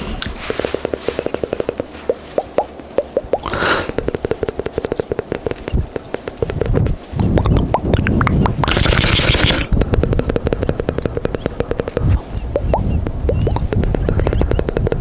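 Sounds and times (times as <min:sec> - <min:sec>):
wet mouth pops and clicks: 0:00.2 - 0:15.0
breathy hiss: 0:03.1 - 0:07.2.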